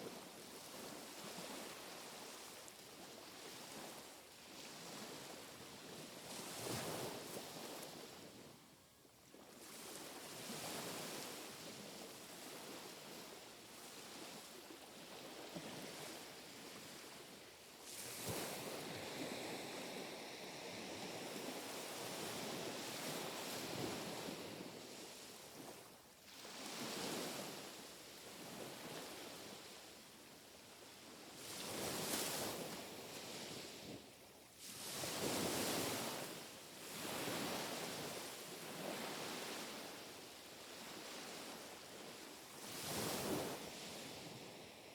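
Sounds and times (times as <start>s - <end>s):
small sea waves washing onto shore: 30.8s - 44.9s.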